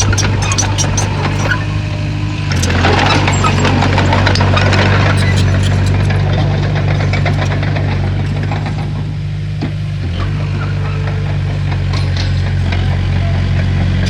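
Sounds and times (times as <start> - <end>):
metallic clanking and rattling: 0.0 - 9.1
bulldozer diesel engine running: 0.0 - 14.0.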